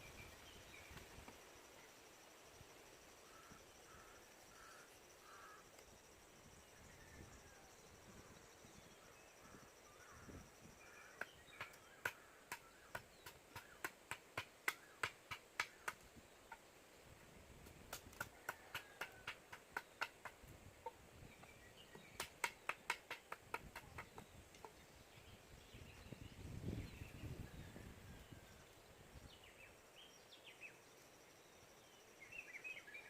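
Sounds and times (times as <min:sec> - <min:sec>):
faint bird chirps: 0:03.0 - 0:13.9, 0:23.7 - 0:33.0
tool tapping on wood: 0:11.2 - 0:16.0, 0:21.9 - 0:24.3.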